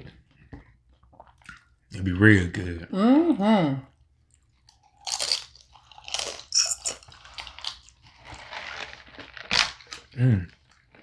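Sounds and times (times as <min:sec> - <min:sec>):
chewing crisp fried food: 0:04.2 - 0:11.0.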